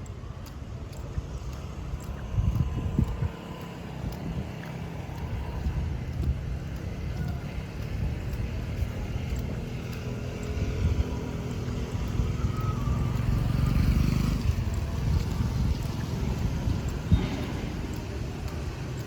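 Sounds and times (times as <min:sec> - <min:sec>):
car engines passing: 0:00.0 - 0:19.0
motorbike engines passing: 0:00.0 - 0:19.0.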